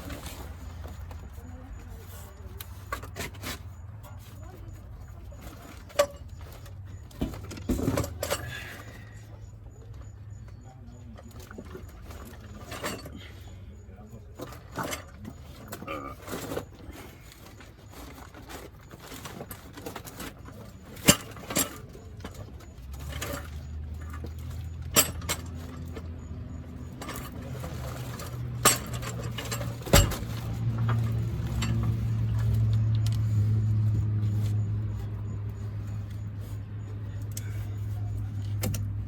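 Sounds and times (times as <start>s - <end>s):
metallic clinks of tools: 18.0s - 38.9s.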